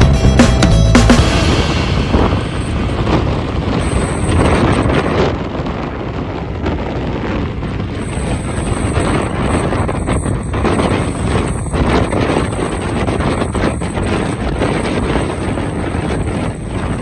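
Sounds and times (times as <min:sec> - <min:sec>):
motorbike engine: 0:00.0 - 0:17.0
road rumble: 0:00.0 - 0:17.0
wind buffeting microphone: 0:00.0 - 0:17.0.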